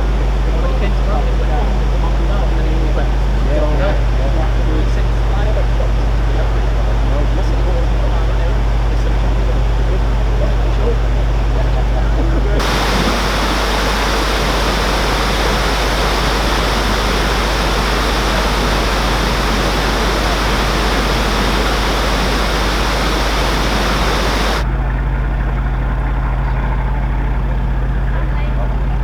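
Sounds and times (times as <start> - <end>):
boat diesel engine running: 0.0 - 24.6
loud rushing noise: 12.6 - 24.6.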